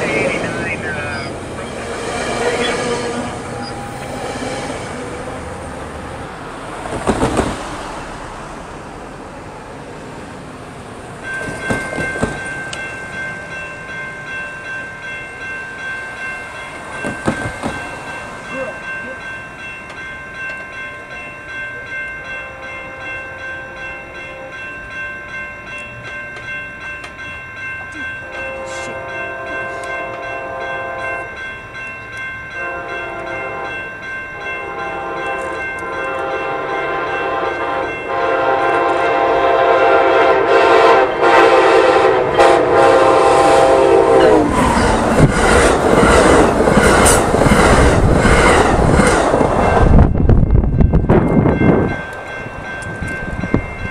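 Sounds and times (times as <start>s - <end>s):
train horn: 0.0s - 5.6s, 28.2s - 31.2s, 32.6s - 33.8s, 34.4s - 44.7s
railway warning bells: 0.0s - 53.9s.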